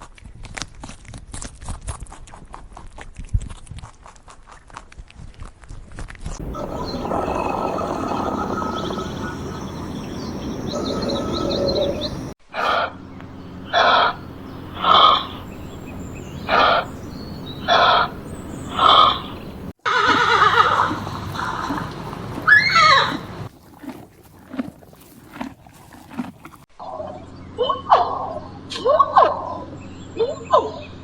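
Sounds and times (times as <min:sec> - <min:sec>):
short loud animal calls: 0:06.4 - 0:12.9, 0:13.6 - 0:23.5
noisy animal calls: 0:06.4 - 0:26.6.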